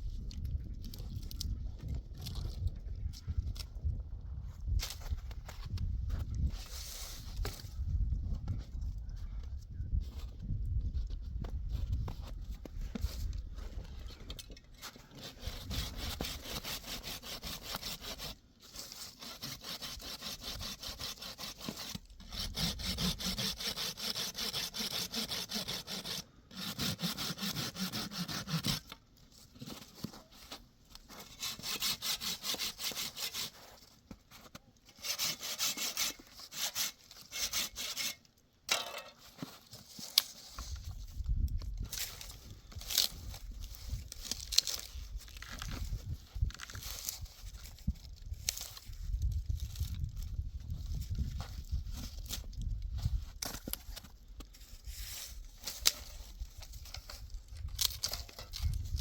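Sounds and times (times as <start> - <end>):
rasping strokes on wood: 15.1 - 18.4, 19.1 - 28.8, 31.3 - 33.6, 35.0 - 38.2.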